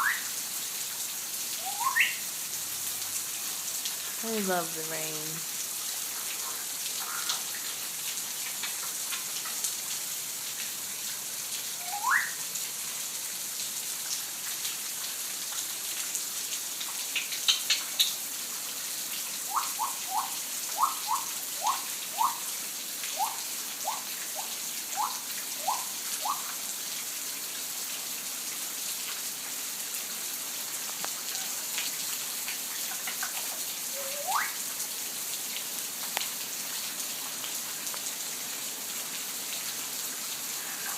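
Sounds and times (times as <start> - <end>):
steady rain falling: 0.0 - 40.9
bird whistling rising calls: 1.6 - 2.2, 11.8 - 12.4, 34.0 - 34.6.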